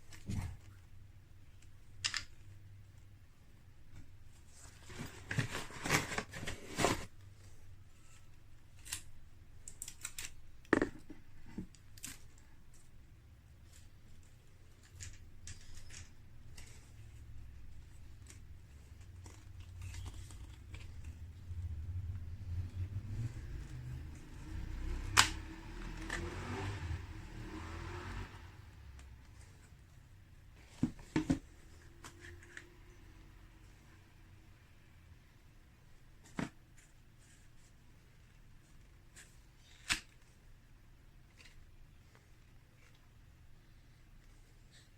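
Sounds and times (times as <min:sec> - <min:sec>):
rustling and scraping: 0:03.9 - 0:08.9.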